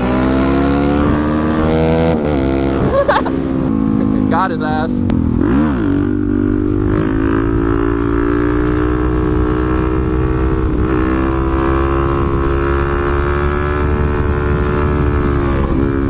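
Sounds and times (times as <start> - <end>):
motorcycle engine running: 0.0 - 16.0
wind rumble: 0.0 - 16.0.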